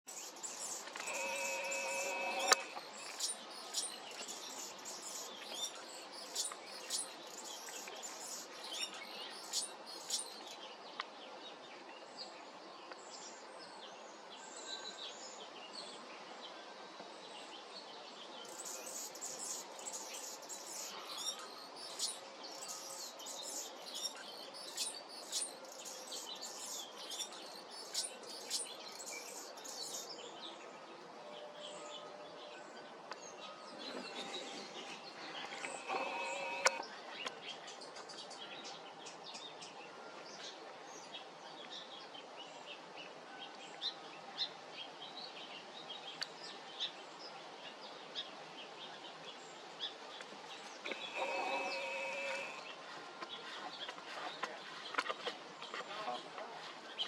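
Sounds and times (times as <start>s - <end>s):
hummingbird chirping: 0.1s - 10.3s, 34.1s - 36.8s, 50.9s - 52.8s
steady tone: 1.0s - 2.8s.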